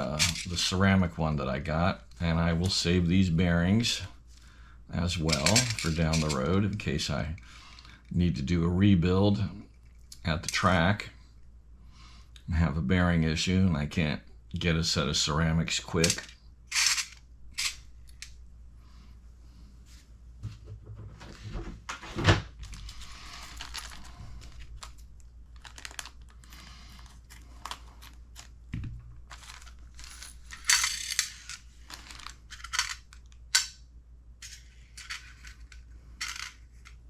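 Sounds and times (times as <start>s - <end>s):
small parts clicking and clinking: 0.0s - 0.6s, 5.2s - 6.5s, 16.0s - 18.4s, 22.6s - 28.5s, 29.2s - 33.8s, 34.4s - 37.0s
rustling: 21.2s - 33.2s.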